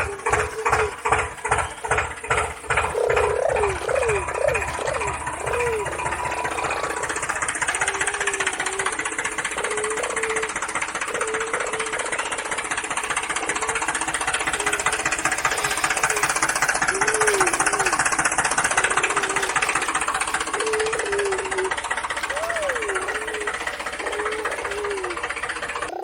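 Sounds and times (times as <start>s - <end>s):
toy motor rattling buzz: 0.0s - 26.0s.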